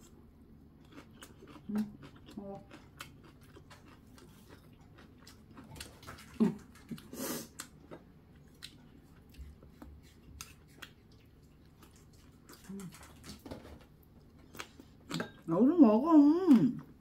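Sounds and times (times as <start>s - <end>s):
wet chewing and smacking: 0.0s - 15.5s.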